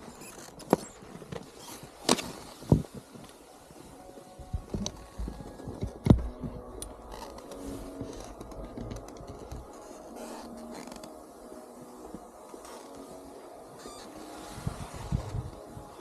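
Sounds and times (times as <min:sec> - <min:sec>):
snowboard scraping on snow: 0:10.2 - 0:16.0.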